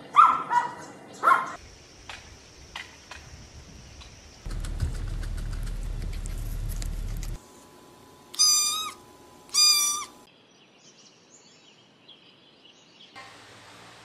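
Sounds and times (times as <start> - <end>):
guinea pig wheeking: 8.3 - 10.3.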